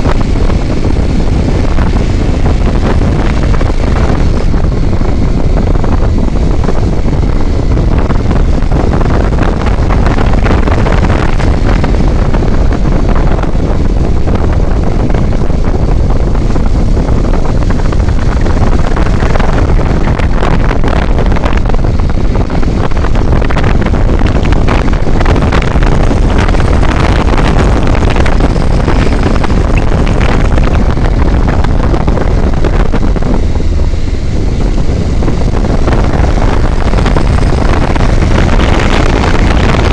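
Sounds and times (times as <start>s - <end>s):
vehicle road noise: 0.0s - 39.9s
wind rumble on microphone: 0.0s - 39.9s.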